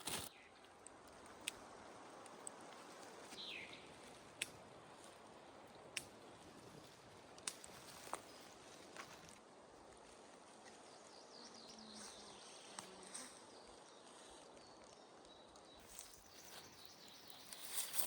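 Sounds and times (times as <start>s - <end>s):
distant bird chirps: 3.3s - 4.1s, 10.6s - 18.0s.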